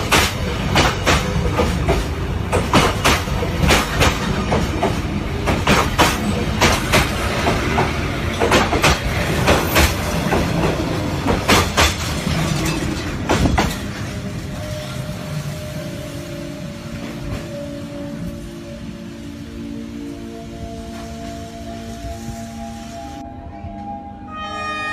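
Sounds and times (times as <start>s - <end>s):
wheels clacking over rail joints: 0.0s - 14.4s
train rumbling on rails: 0.0s - 24.9s.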